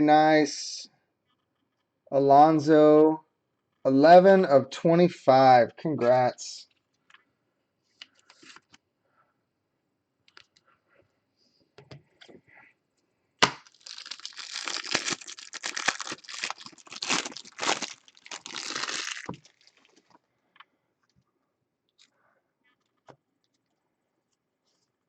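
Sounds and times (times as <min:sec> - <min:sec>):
wrapper snapping: 0:13.4 - 0:20.0
foil wrapper crinkling and tearing: 0:13.6 - 0:20.0.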